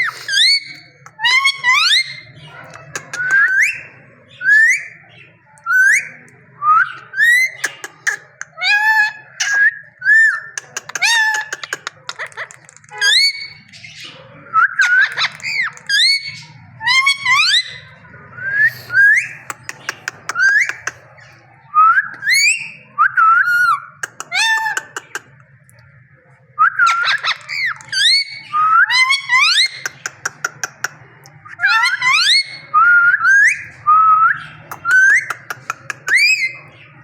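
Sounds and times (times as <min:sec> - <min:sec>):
parrot clicking trills: 0:02.6 - 0:03.7, 0:10.6 - 0:13.8, 0:14.8 - 0:17.3, 0:19.5 - 0:21.0, 0:26.8 - 0:28.3, 0:28.9 - 0:31.0, 0:34.7 - 0:36.6
parrot whistling: 0:26.6 - 0:30.0.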